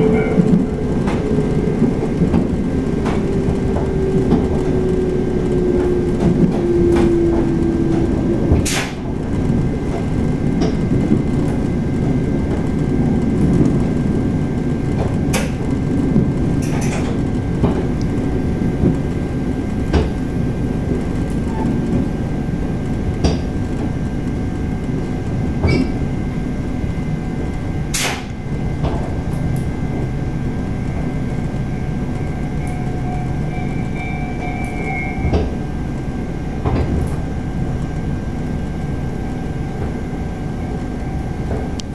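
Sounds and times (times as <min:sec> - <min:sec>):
train wheels rumbling on rail: 0:00.0 - 0:41.9
brakes squealing: 0:30.9 - 0:36.0.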